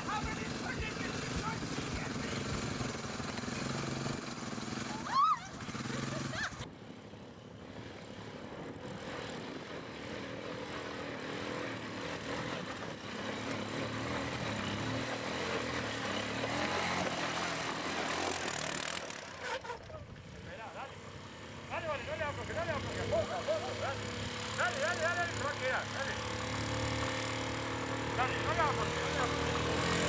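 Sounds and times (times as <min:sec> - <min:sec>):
engine running steadily: 0:00.0 - 0:13.8, 0:19.8 - 0:30.0.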